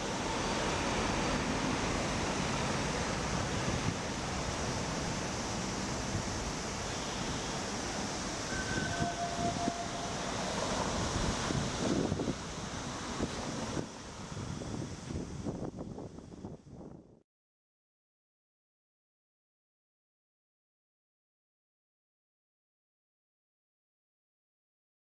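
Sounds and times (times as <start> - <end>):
city traffic: 0.0 - 16.6
brief high tones: 8.4 - 10.8
wind on microphone: 10.6 - 17.2.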